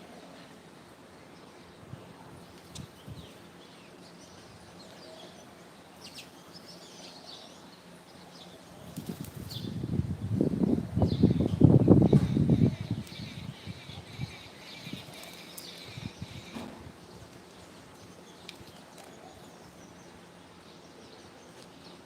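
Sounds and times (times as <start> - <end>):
bird wings flapping: 8.8 - 9.7.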